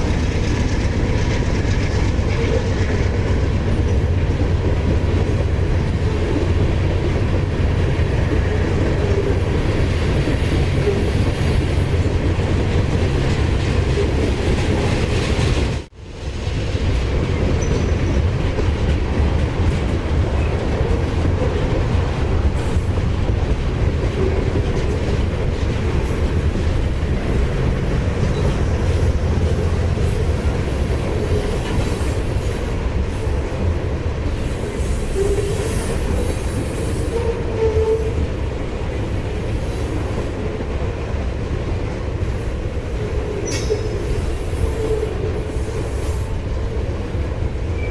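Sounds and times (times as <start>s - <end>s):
freight train rumbling past: 0.0s - 47.9s
wheels clacking over rail joints: 16.5s - 47.9s.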